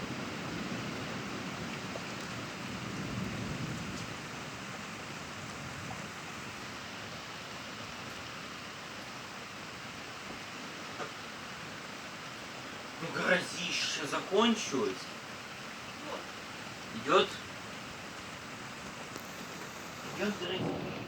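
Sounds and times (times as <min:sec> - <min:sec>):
thunderclap: 0:00.0 - 0:06.3, 0:18.8 - 0:21.0
low rumble of thunder: 0:00.0 - 0:08.0, 0:16.7 - 0:21.0
steady rain falling: 0:00.0 - 0:21.0.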